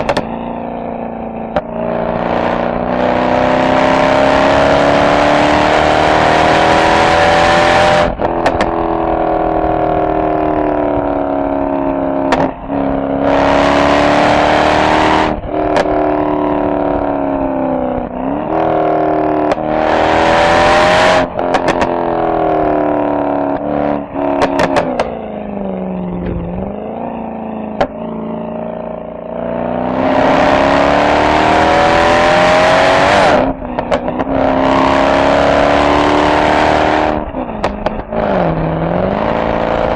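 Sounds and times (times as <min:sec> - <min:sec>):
exhaust cracks and pops: 0:00.0 - 0:00.4, 0:08.2 - 0:09.0, 0:12.2 - 0:12.6, 0:15.4 - 0:16.2, 0:21.4 - 0:22.0, 0:24.3 - 0:25.2, 0:33.6 - 0:34.4, 0:37.2 - 0:38.2
car exhaust revving: 0:00.0 - 0:39.9.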